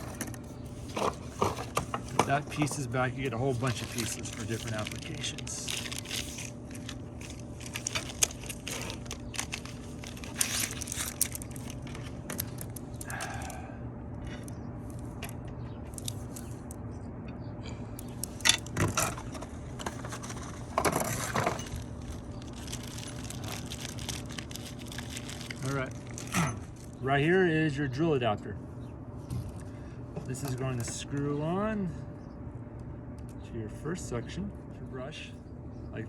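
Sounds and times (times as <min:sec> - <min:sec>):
plastic parts clicking and rattling: 0:00.0 - 0:13.6, 0:18.0 - 0:26.9
low steady hum: 0:00.0 - 0:36.0.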